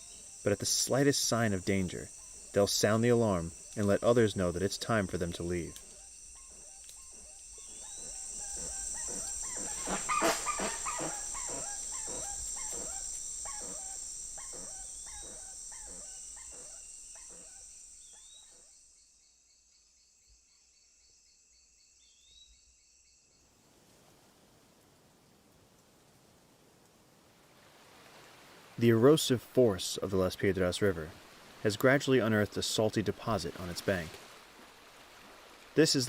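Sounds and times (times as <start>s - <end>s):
high insect drone: 0.0s - 23.7s
bird alarm calls: 5.6s - 18.6s.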